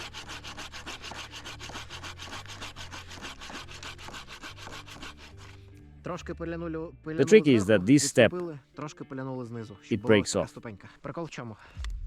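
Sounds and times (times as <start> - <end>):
saw cutting through log: 0.0 - 5.7.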